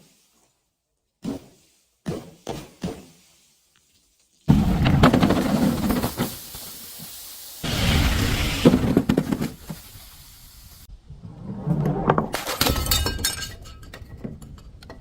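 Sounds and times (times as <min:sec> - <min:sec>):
glass bottles shattering: 0:12.4 - 0:13.9.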